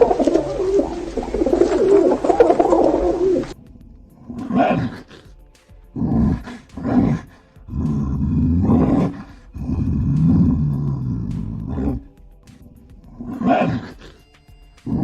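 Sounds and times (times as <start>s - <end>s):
large animal roaring and growling: 0.0s - 3.6s, 4.2s - 5.3s, 5.9s - 12.1s, 13.1s - 14.2s.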